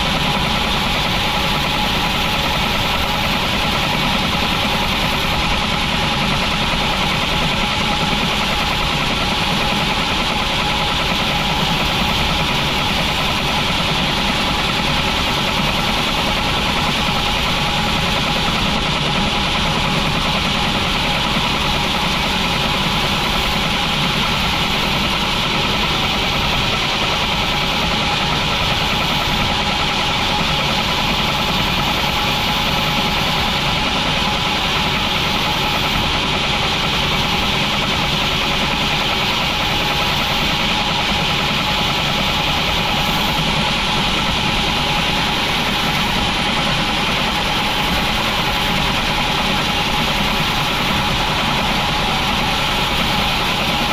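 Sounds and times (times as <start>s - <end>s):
sawmill machinery droning: 0.0s - 53.9s.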